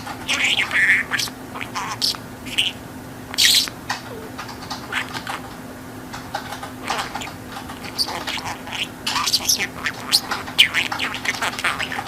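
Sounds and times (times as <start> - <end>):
budgerigar chattering: 0.2 - 2.8, 3.4 - 3.7, 6.8 - 12.0.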